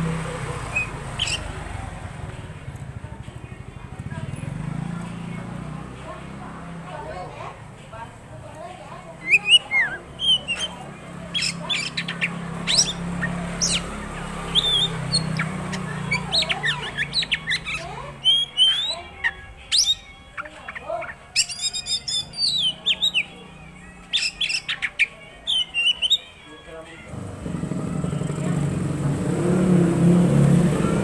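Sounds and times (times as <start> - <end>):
songbird singing varied whistles: 0.6 - 1.6, 9.2 - 23.4, 24.1 - 26.3.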